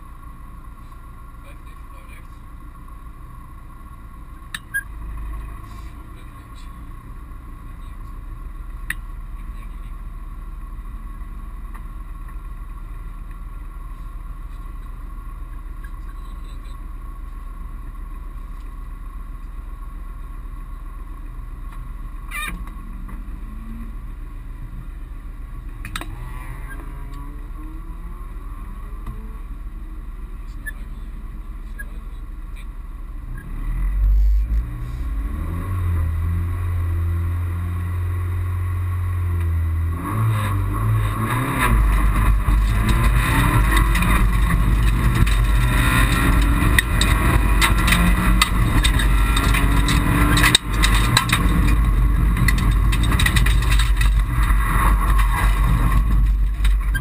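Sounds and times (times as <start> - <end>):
rally car engine idling and revving: 0.0 - 57.0.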